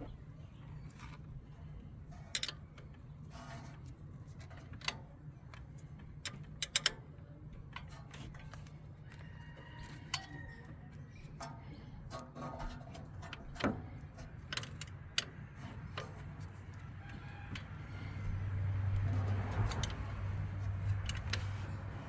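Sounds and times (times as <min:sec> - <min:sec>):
metallic clicks of hand tools: 0:06.2 - 0:07.0
car low hum: 0:13.6 - 0:22.0.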